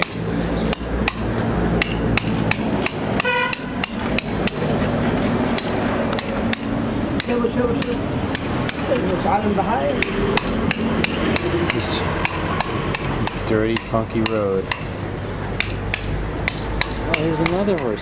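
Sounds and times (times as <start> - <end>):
hammer tapping horseshoe nails: 0.0 - 4.8, 5.6 - 8.9, 10.0 - 15.0, 15.6 - 18.0.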